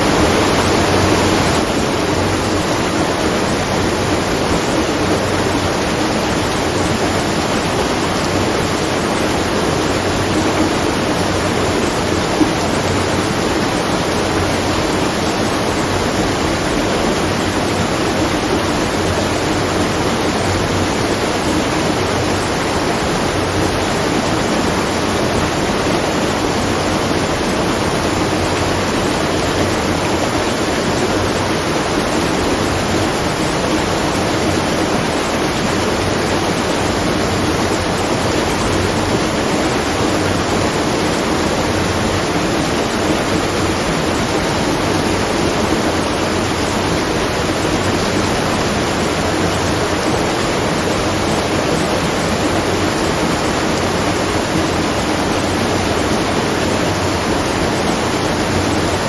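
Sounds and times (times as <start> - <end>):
water falling and splashing: 0.0 - 59.0.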